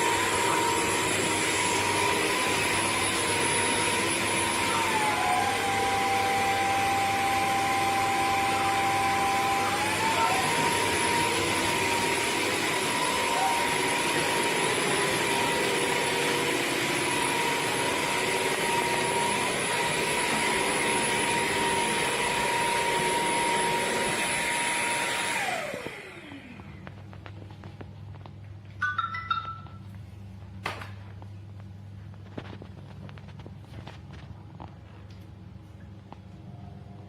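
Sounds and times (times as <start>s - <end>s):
vacuum cleaner motor whine: 0.0s - 28.3s.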